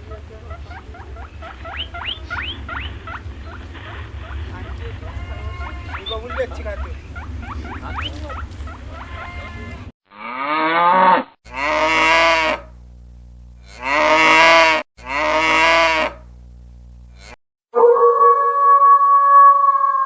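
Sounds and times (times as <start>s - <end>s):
short chirping calls: 0.0s - 9.9s
cow mooing: 0.0s - 12.7s, 13.6s - 16.2s.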